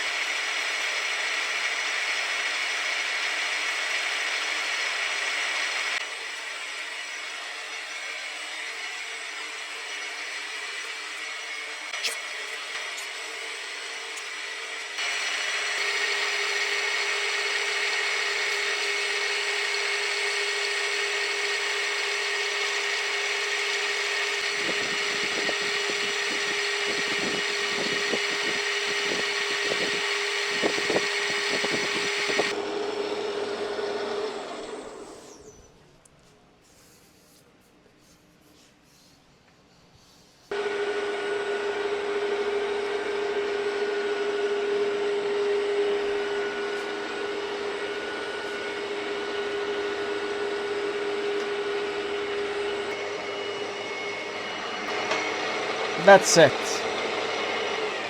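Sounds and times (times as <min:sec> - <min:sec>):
motor starting up: 0:11.9 - 0:35.6
milling machine running: 0:12.6 - 0:35.2, 0:40.6 - 0:58.0.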